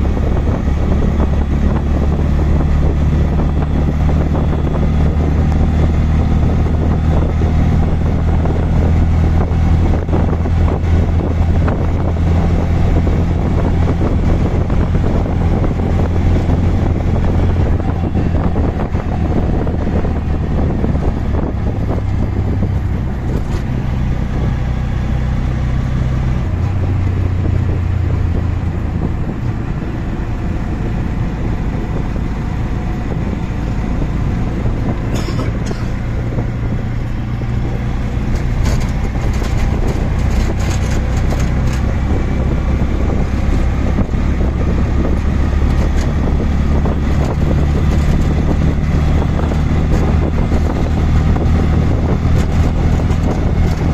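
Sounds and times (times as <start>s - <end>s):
auto-rickshaw engine running: 0.0s - 53.9s
short rattles and clatters: 37.7s - 41.9s.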